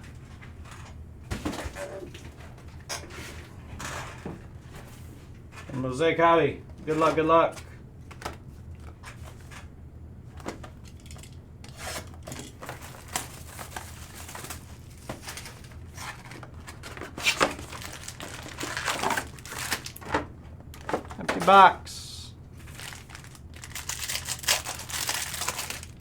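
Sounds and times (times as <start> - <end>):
packs crinkling and rustling: 10.4 - 21.7, 22.6 - 26.0
plastic shrink-wrap tearing: 17.1 - 20.1, 22.6 - 26.0.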